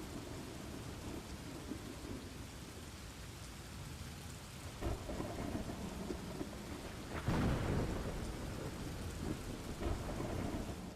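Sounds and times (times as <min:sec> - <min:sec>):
thunder rumbling: 0:00.0 - 0:02.5, 0:04.7 - 0:10.9
steady rain: 0:00.0 - 0:10.9.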